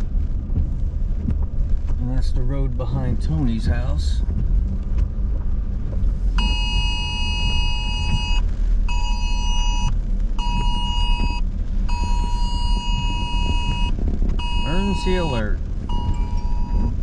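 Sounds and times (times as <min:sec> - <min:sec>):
car low rumble: 0:00.0 - 0:17.0
loud two-pitch alert tone: 0:10.5 - 0:16.9.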